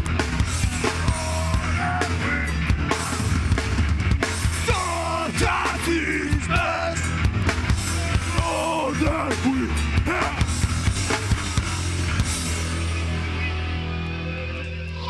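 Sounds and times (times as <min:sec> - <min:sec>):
pounding drums: 0:00.0 - 0:12.6
distorted guitars: 0:00.0 - 0:15.0
person singing: 0:00.8 - 0:03.2, 0:07.9 - 0:10.5.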